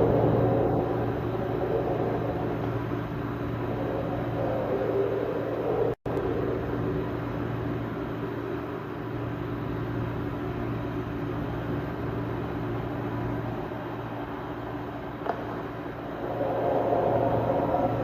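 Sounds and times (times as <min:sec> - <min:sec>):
low rumbling drone: 0:00.0 - 0:10.8, 0:12.7 - 0:18.0
constant hum: 0:00.0 - 0:18.0
noisy wash: 0:00.0 - 0:18.0.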